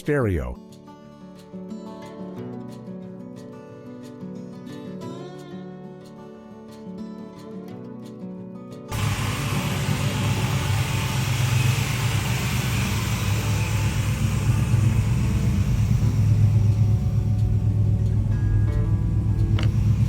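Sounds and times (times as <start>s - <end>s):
car engine running: 8.9s - 20.0s.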